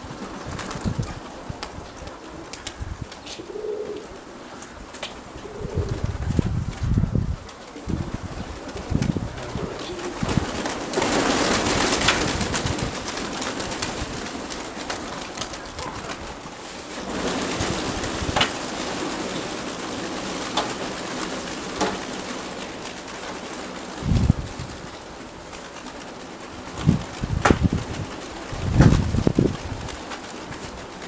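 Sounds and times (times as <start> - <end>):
wind on microphone: 0.0 - 4.1, 4.7 - 14.4, 17.2 - 18.6, 24.0 - 25.0, 26.6 - 30.8
pigeons cooing: 0.0 - 31.0.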